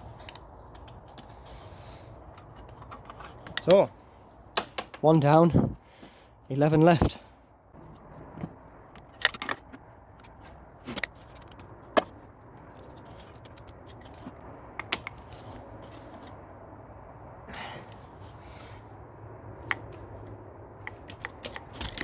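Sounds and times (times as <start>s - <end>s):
tools clicking and knocking: 0.2s - 1.3s, 2.3s - 3.8s, 4.6s - 5.1s, 20.8s - 22.0s.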